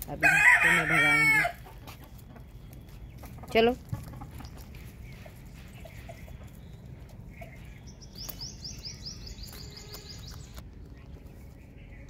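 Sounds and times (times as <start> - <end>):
steady low rumble: 1.6 - 12.0
bird chirping: 1.8 - 12.0.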